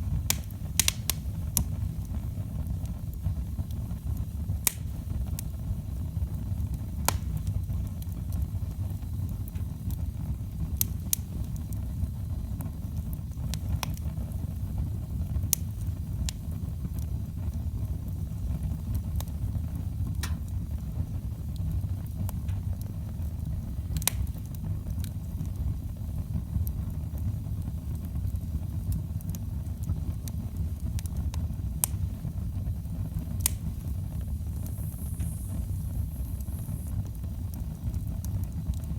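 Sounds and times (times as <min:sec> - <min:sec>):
burning logs crackling and popping: 0:00.0 - 0:38.9
fire flames rumbling: 0:00.0 - 0:38.9.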